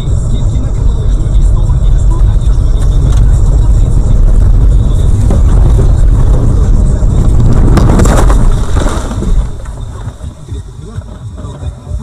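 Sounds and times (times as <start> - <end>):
car road rumble: 0.0 - 12.0
knocks and clatter: 4.3 - 11.6.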